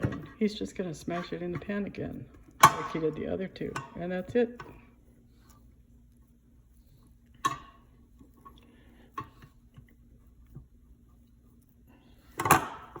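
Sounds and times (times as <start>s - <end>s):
kitchen clatter: 0.0s - 4.8s
faint steady hum: 0.0s - 13.0s.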